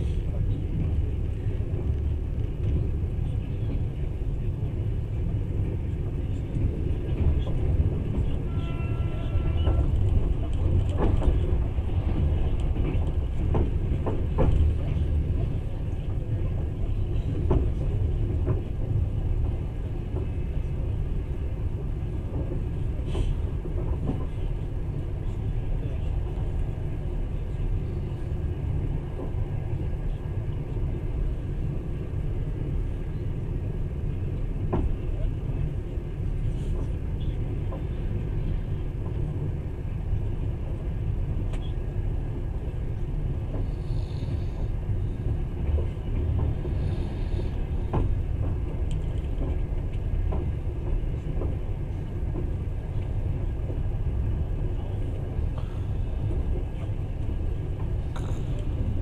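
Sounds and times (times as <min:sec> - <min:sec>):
train low rumble: 0:00.0 - 0:59.0.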